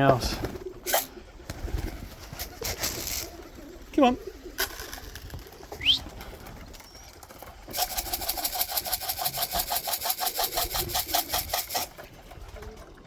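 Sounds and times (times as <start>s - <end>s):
grain rattling in a container: 4.6s - 5.7s, 7.7s - 11.9s.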